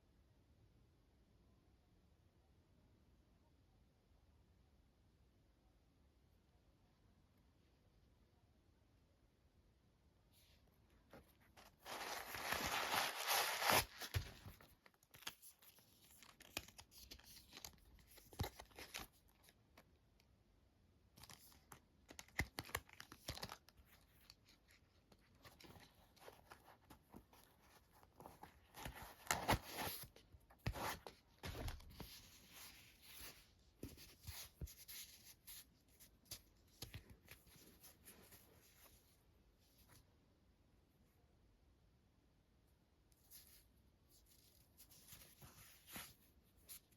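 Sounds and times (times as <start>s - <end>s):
packaging tearing and crinkling: 11.8s - 14.2s.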